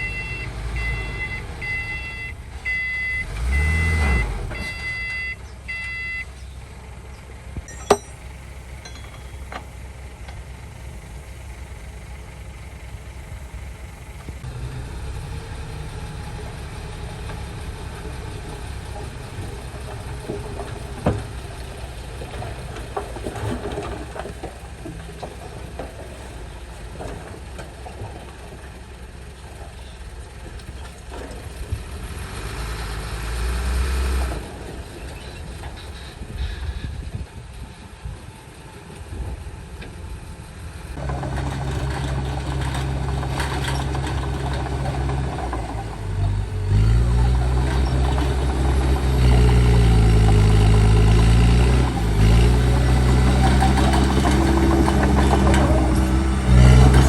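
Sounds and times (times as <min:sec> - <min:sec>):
reversing alarm beeping: 0:00.0 - 0:06.3, 0:07.7 - 0:08.2
diesel engine rumble: 0:00.0 - 0:57.0.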